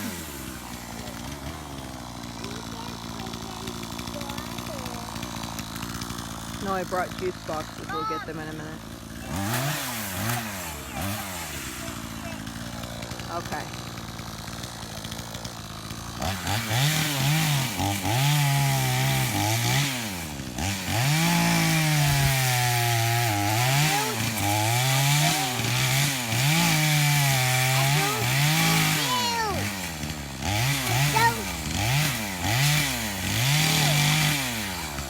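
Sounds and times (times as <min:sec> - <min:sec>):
chainsaw idling and revving: 0:00.0 - 0:35.0.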